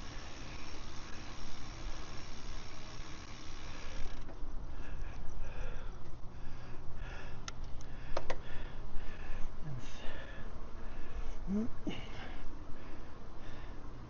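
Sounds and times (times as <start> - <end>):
bicycle drivetrain whirring: 0.0 - 7.4.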